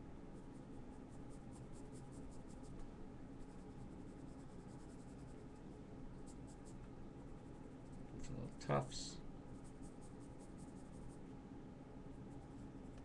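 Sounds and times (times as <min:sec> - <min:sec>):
pencil scratching on paper: 0:00.4 - 0:02.8, 0:03.4 - 0:05.6, 0:06.2 - 0:06.8, 0:09.6 - 0:11.2.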